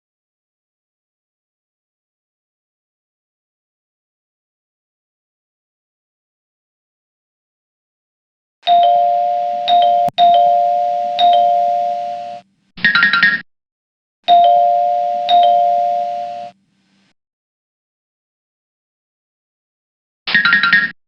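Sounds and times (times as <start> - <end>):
electronic two-tone chime: 8.7 - 12.4, 14.3 - 16.6.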